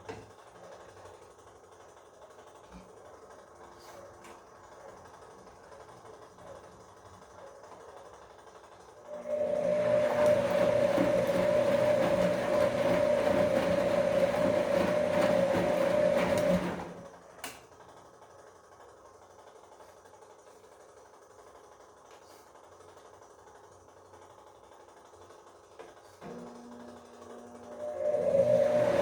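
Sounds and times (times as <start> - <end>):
washing machine humming: 0.0 - 29.0.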